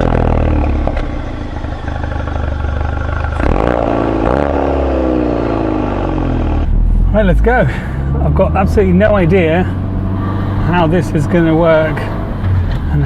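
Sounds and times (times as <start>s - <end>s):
car exhaust idling and revving: 0.0s - 13.0s.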